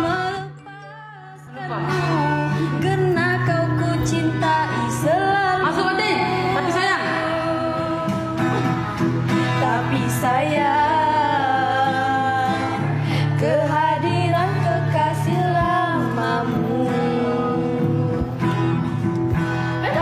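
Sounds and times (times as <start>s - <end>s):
person singing slow melody: 0.0s - 20.0s
instrumental accompaniment with bass: 17.7s - 20.0s.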